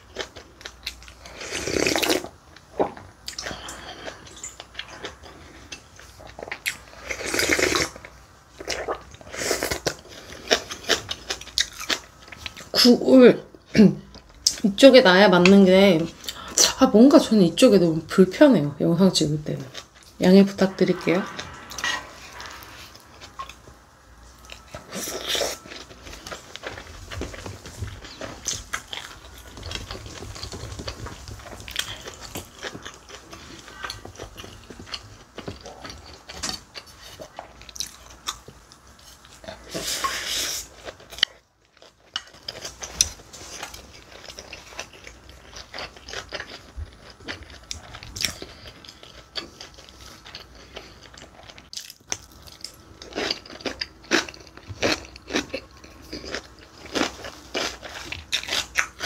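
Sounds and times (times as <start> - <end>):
close chewing with mouth clicks: 0.0 - 12.9, 21.6 - 59.0
rush of noise: 20.4 - 23.7.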